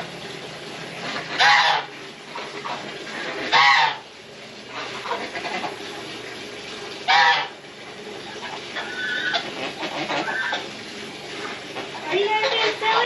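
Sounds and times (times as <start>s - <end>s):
poultry calling: 1.3s - 1.9s, 3.5s - 4.0s, 7.1s - 7.5s.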